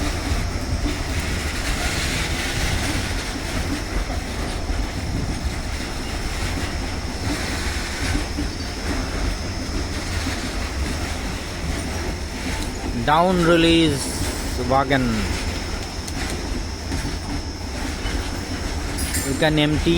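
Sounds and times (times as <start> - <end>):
train wheels rumbling on rails: 0.0 - 19.9
thin high whine: 12.6 - 19.9.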